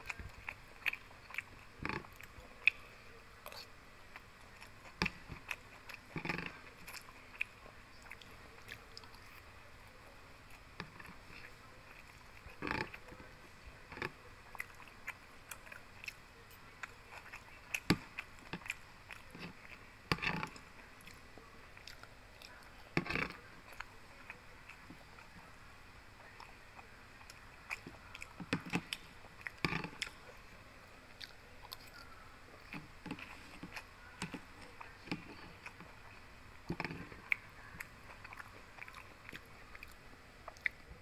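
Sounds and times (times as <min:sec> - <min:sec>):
person chewing and biting food: 0:36.7 - 0:40.9.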